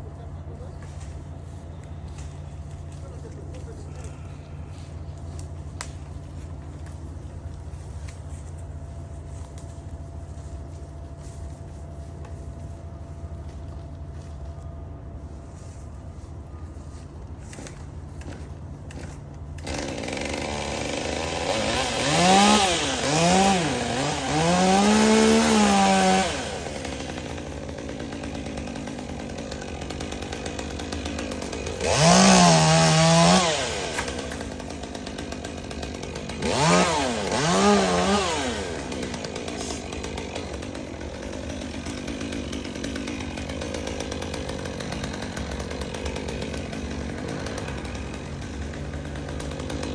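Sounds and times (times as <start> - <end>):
chainsaw engine revving and idling: 17.4 - 49.9.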